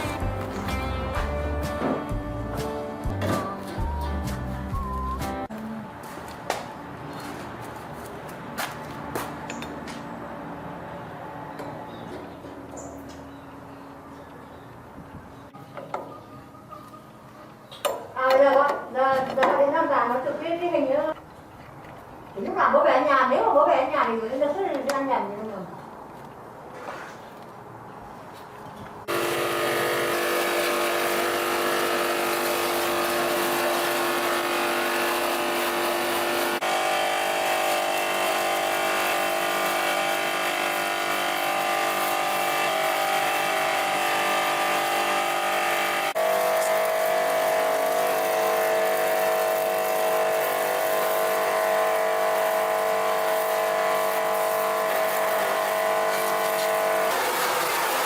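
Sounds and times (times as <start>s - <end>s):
machine humming steadily: 29.0s - 58.0s.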